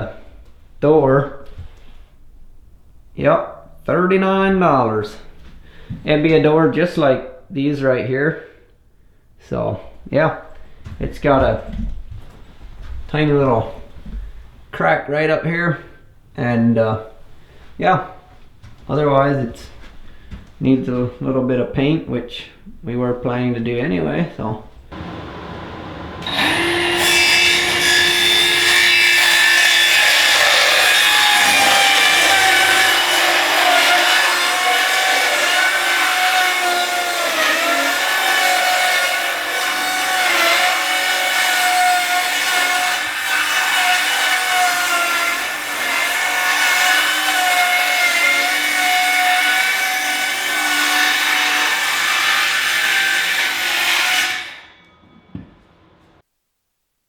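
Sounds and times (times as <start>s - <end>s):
power saw cutting wood: 24.9s - 55.3s.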